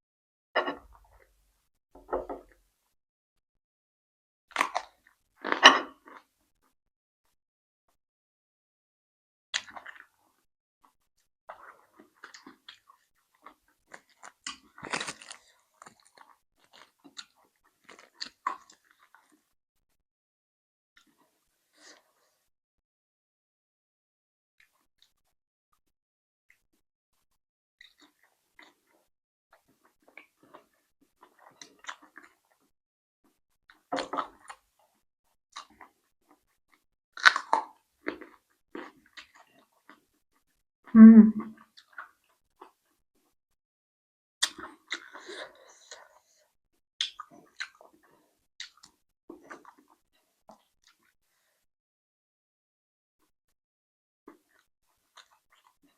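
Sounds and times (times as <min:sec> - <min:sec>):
person chewing and crunching food: 0:04.5 - 0:06.3, 0:09.5 - 0:19.5, 0:27.8 - 0:32.7, 0:33.3 - 0:40.6, 0:41.7 - 0:43.3, 0:44.4 - 0:46.4, 0:47.0 - 0:51.4, 0:54.3 - 0:55.9.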